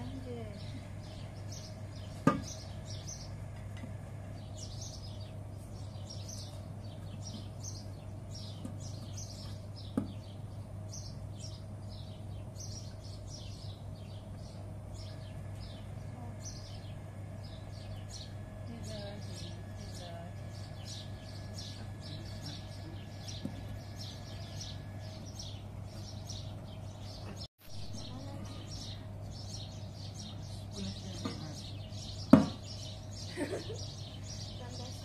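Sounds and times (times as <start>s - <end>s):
small birds chirping: 0.0s - 35.0s
steady low hum: 0.0s - 35.0s
sharp knocks: 2.2s - 2.6s, 32.3s - 32.6s.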